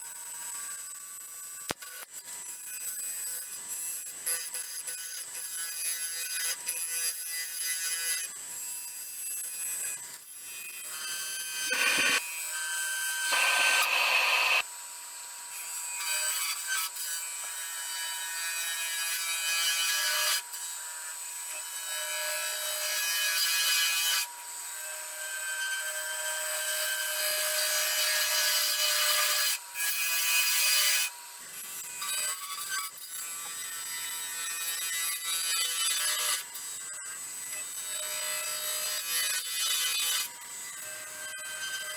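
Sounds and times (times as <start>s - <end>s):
lathe tool scraping wood: 11.5s - 12.2s, 13.3s - 14.6s.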